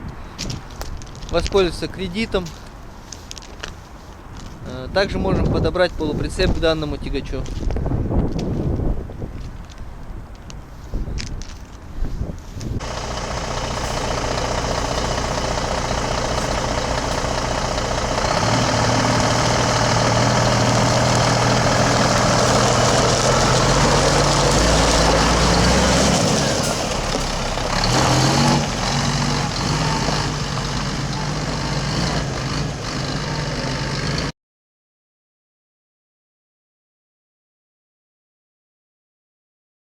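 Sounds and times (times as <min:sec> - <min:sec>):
truck diesel engine running: 0:12.8 - 0:34.3.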